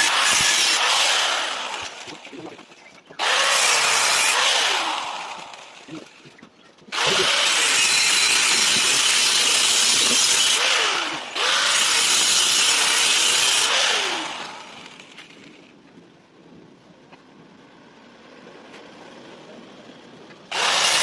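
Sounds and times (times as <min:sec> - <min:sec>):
power tool running: 0:00.0 - 0:02.6, 0:03.2 - 0:06.2, 0:06.9 - 0:15.2, 0:20.5 - 0:21.0.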